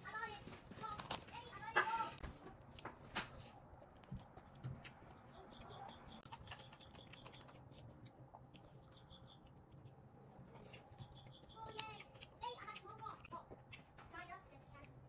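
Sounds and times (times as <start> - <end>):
man chewing: 2.6 - 14.0.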